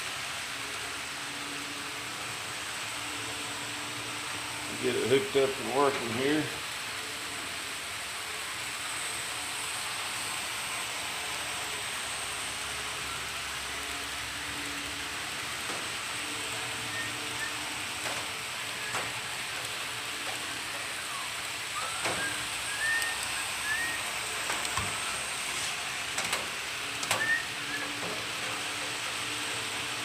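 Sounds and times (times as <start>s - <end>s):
model train wheels hissing on track: 0.0s - 30.0s.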